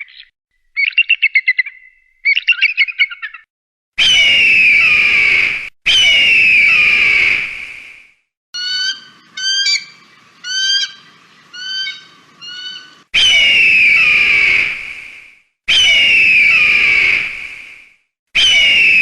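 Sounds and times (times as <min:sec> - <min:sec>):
eagle piping calls: 0:00.0 - 0:03.4, 0:04.0 - 0:07.4, 0:08.6 - 0:14.7
eagle screams falling in pitch: 0:04.0 - 0:07.5, 0:08.6 - 0:14.8, 0:15.7 - 0:17.3, 0:18.4 - 0:19.0.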